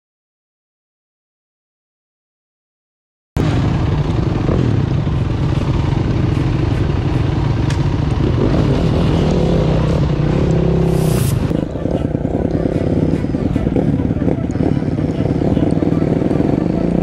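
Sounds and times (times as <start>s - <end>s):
off-road bike engine running: 3.4s - 17.0s.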